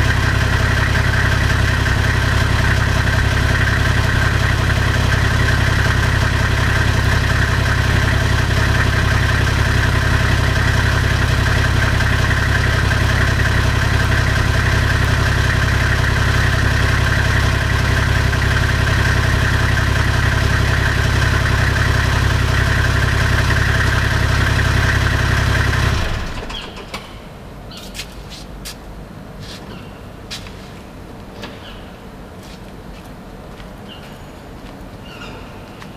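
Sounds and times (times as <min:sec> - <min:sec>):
car engine idling: 0:00.0 - 0:27.5.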